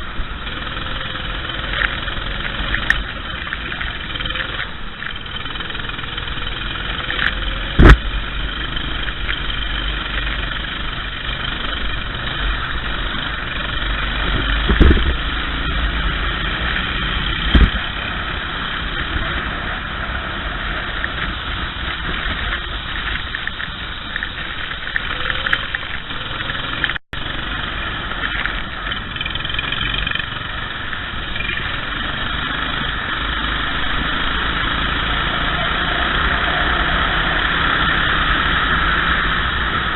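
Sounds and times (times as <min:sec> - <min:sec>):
kart engines running: 0:00.0 - 0:39.9
sharp thumps: 0:07.8 - 0:08.1, 0:17.4 - 0:17.8.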